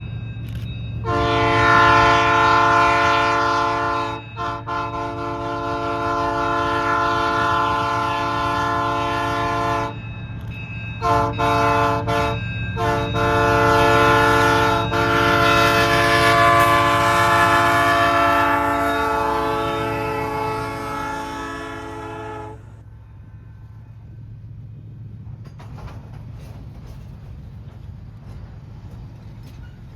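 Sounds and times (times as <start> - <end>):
train rumbling: 0.0 - 29.9
train horn blasts: 1.0 - 10.0, 11.0 - 22.9.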